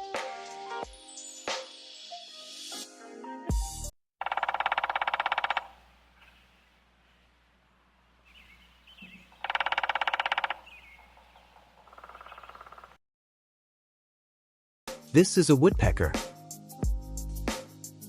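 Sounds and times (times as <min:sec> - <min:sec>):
bird chirps: 0:04.2 - 0:06.6, 0:08.2 - 0:13.0
woodpecker drumming: 0:04.2 - 0:06.7, 0:07.6 - 0:13.0.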